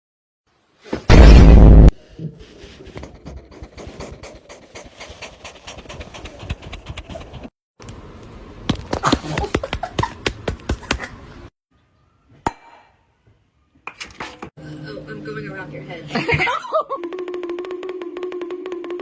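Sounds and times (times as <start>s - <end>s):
scuffling and knocking: 13.9s - 14.5s.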